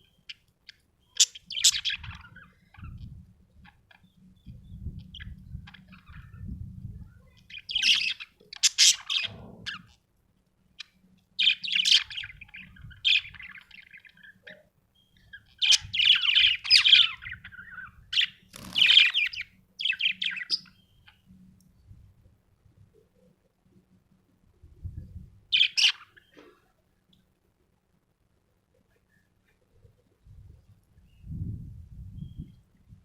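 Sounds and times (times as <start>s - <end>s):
budgerigar chirping and warbling: 1.2s - 3.1s, 7.5s - 9.9s, 15.4s - 21.2s, 25.5s - 26.3s.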